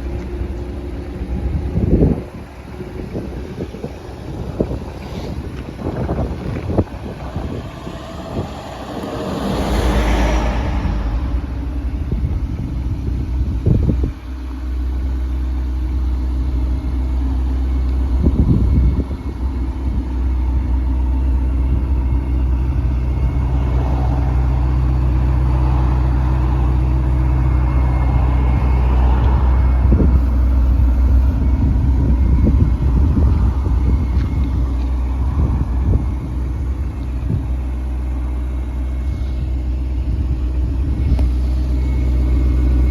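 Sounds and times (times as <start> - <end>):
rushing noise: 0.0 - 14.2
car engine low rumble: 0.0 - 42.9.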